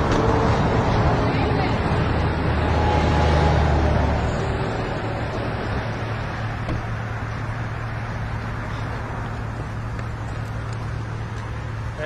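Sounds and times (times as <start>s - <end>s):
road noise: 0.0s - 12.0s
vehicle engine running: 3.7s - 12.0s.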